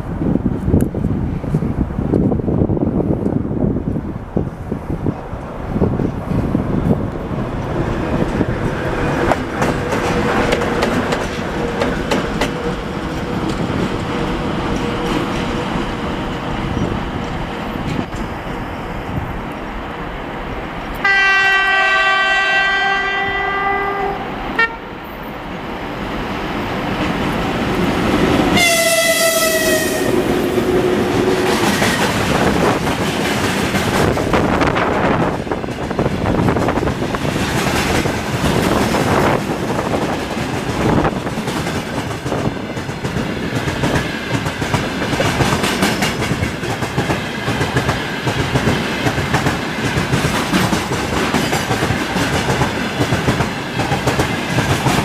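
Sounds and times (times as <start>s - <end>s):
locomotive rumbling: 0.0s - 21.0s
train wheel clatter: 6.0s - 18.6s, 26.8s - 55.0s
train horn blast: 21.0s - 25.0s, 28.6s - 30.6s.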